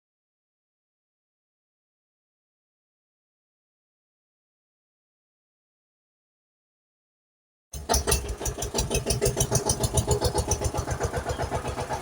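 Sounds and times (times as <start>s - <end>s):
car engine starting and idling: 7.8s - 12.0s.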